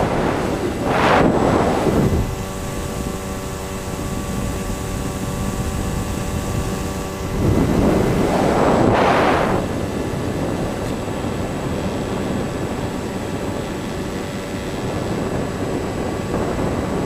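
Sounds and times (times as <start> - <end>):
electric motors of model plane: 0.0 - 17.0
wind noise on microphone: 0.0 - 17.0.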